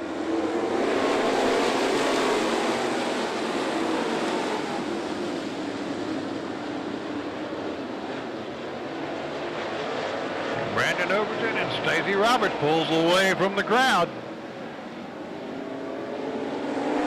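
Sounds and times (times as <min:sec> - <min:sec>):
race cars passing: 0:00.0 - 0:17.0.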